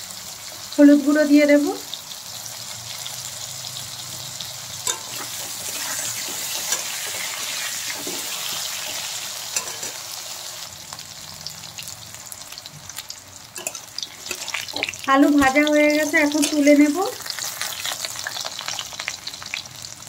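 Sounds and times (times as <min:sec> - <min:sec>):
potato wedges sizzling in oil: 0:00.0 - 0:20.0
metal spatula scraping a pan: 0:04.8 - 0:10.6, 0:13.6 - 0:15.1.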